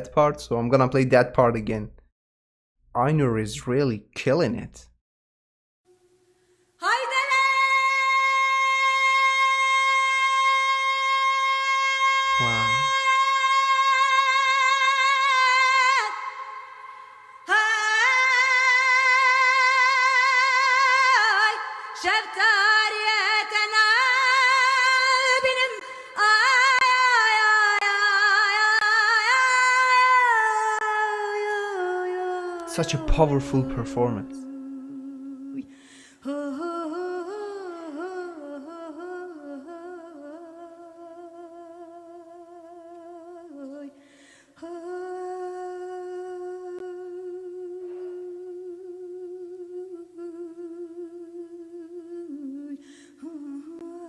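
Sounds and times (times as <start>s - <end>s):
woman singing folk song: 6.8s - 54.0s
singer drawing breath: 35.6s - 36.2s, 44.0s - 44.6s, 52.8s - 53.2s.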